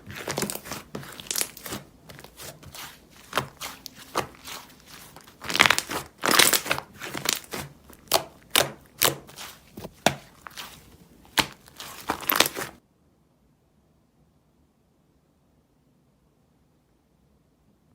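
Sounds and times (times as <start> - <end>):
slime squelching by hand: 0.0 - 12.8.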